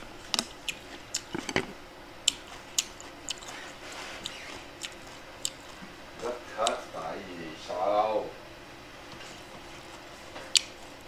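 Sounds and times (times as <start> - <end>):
chewing food with clicks and smacks: 0.0 - 6.9, 9.1 - 11.0.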